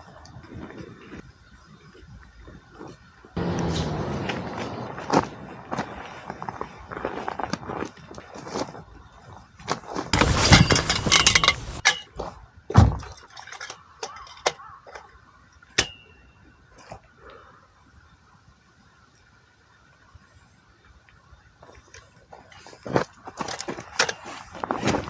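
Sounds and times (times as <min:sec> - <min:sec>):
heavy thump: 0:10.2 - 0:11.8
knocks and clinks of handled objects: 0:10.2 - 0:12.0
rustling and clattering: 0:10.2 - 0:12.0.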